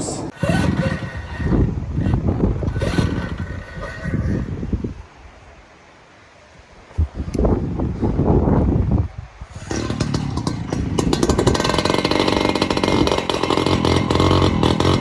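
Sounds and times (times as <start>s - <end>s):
wind buffeting microphone: 0.0s - 5.1s, 6.9s - 15.0s
small engine running: 0.3s - 4.6s, 9.5s - 15.0s.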